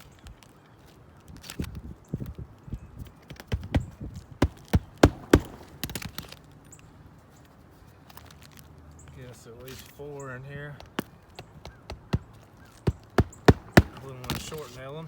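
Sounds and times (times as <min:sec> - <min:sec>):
hammer knocking on shingle roof: 0:03.5 - 0:06.0, 0:10.8 - 0:14.6.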